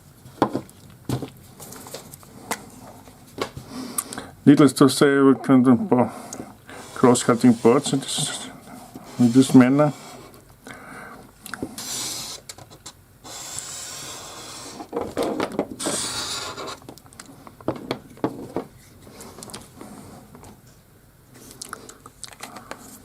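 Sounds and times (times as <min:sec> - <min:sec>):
wooden boards scraping: 0:06.7 - 0:10.2.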